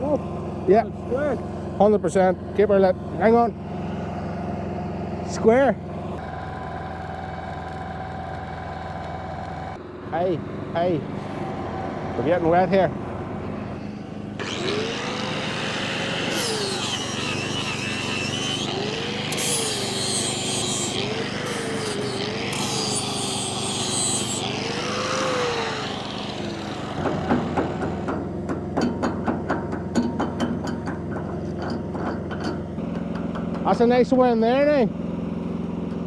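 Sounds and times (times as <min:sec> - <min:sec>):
welder engine hum: 0:11.5 - 0:28.6
angle grinder grinding steel: 0:14.4 - 0:28.3.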